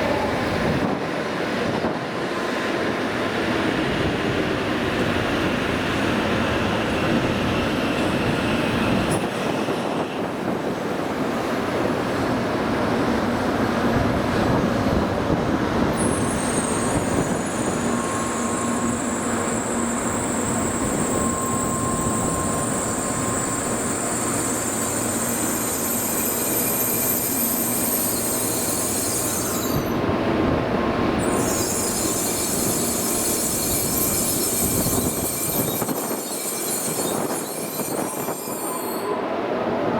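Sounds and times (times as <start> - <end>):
train running noise: 0.0 - 39.9
high-pitched wheel squeal: 16.0 - 30.0, 31.2 - 39.2.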